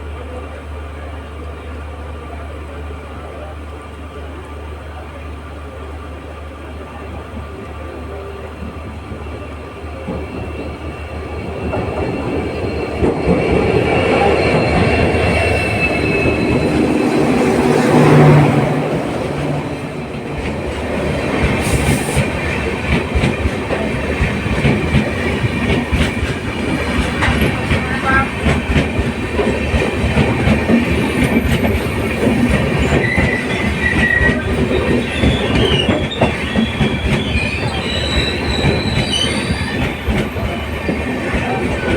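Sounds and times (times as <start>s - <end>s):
high wheel squeals: 9.3s - 18.5s, 31.8s - 41.9s
train wheels clattering on rails: 9.9s - 41.9s.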